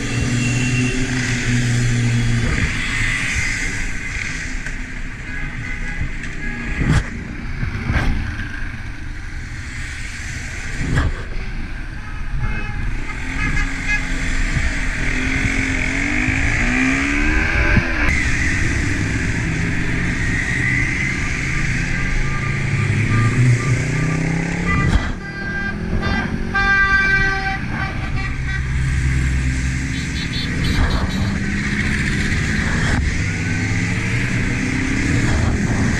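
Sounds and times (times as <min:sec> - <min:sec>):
motorcycle engines revving: 0:00.0 - 0:12.0, 0:12.8 - 0:35.9
horn toots: 0:12.0 - 0:14.3, 0:22.1 - 0:31.4.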